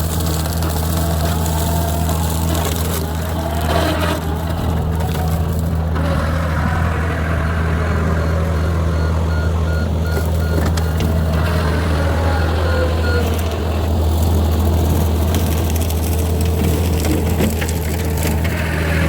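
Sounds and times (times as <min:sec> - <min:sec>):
cracks and snaps: 0:00.0 - 0:05.9
diesel engine running: 0:00.0 - 0:19.0
rapid beeping alarm: 0:08.2 - 0:13.5.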